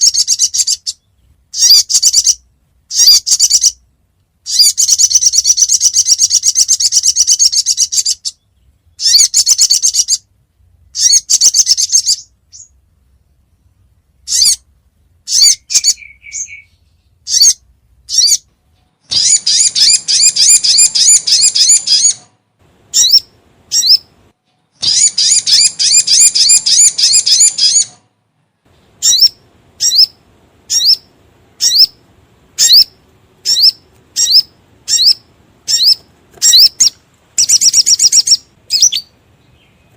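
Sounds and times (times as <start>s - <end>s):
bird rapid chattering calls: 0.0s - 3.8s, 4.5s - 10.3s, 11.0s - 12.7s, 14.3s - 14.7s, 15.3s - 18.5s, 19.1s - 22.3s, 22.9s - 24.1s, 24.8s - 28.0s, 29.0s - 32.0s, 32.6s - 39.9s
bird sharp chips: 24.8s - 28.0s.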